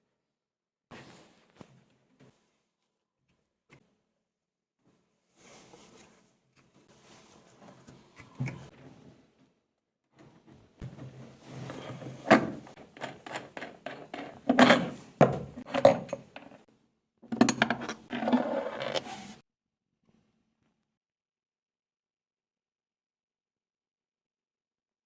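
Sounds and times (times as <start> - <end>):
tools knocking and scraping: 10.8 - 16.6, 17.3 - 19.2.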